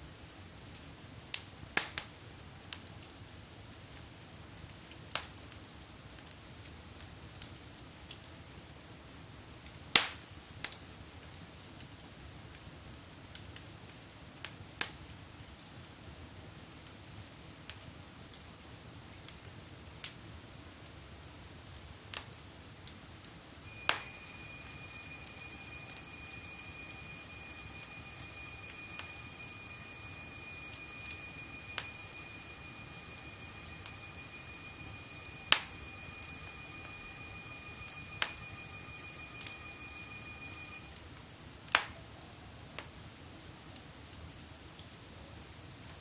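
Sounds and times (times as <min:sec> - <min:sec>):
low steady hiss: 0:00.0 - 0:46.0
faint high tone: 0:23.7 - 0:41.0.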